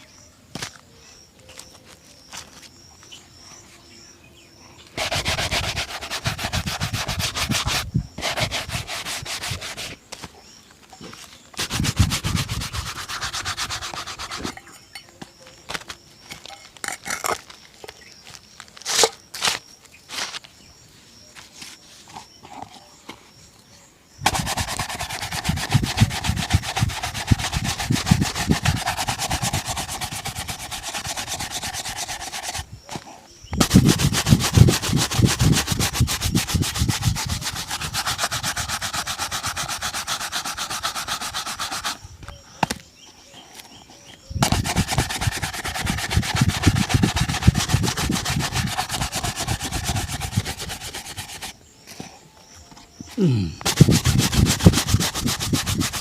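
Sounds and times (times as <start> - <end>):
shoe being buffed: 5.0 - 10.3, 11.6 - 14.6, 24.2 - 32.7, 33.6 - 42.0, 44.4 - 51.6, 53.2 - 56.0.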